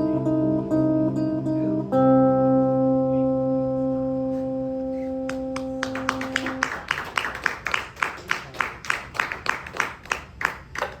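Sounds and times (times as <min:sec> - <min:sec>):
acoustic guitar chord ringing: 0:00.0 - 0:06.6
audience clapping: 0:05.3 - 0:11.0.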